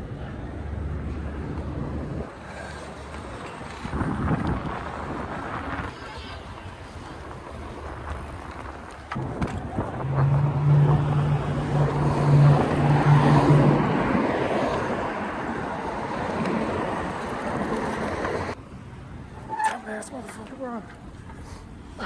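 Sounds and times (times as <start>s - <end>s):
wind buffeting microphone: 0.0s - 19.5s
vehicle engine drone passing: 7.6s - 18.6s.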